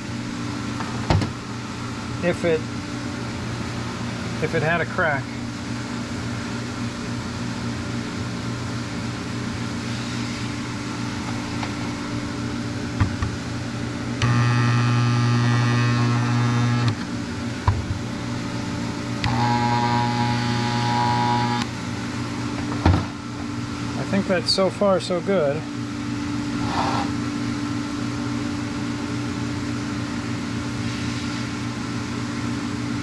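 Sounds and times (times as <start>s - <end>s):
steady background hum: 0.0s - 33.0s
electromagnetic yoke buzzing: 10.5s - 23.2s.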